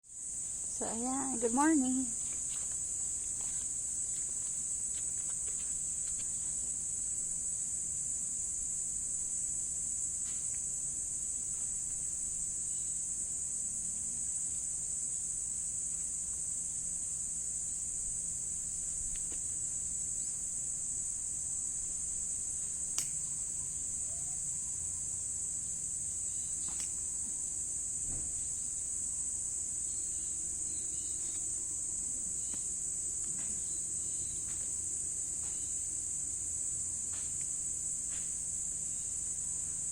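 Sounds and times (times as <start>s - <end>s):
insects singing high-pitched: 0.2s - 7.2s, 22.2s - 27.7s, 28.4s - 39.9s
small click: 23.0s - 23.2s, 26.6s - 27.0s.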